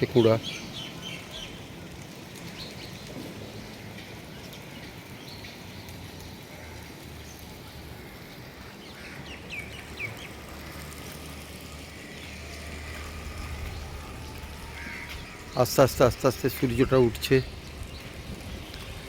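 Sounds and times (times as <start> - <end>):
downward-sweeping bird calls: 0.0 - 3.1, 8.0 - 19.0
small birds chirping: 0.0 - 19.0.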